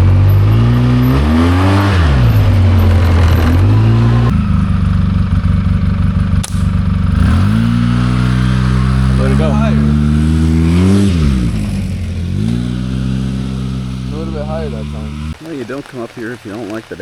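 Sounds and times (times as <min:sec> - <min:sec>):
atv engine running under load: 0:00.0 - 0:17.0
sharp click: 0:06.4 - 0:06.8.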